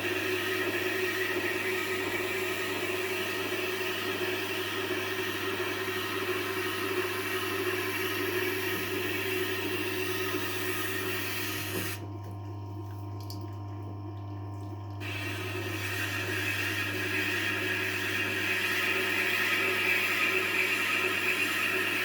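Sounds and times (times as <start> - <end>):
sharpening machine motor hum: 15.0 - 22.0.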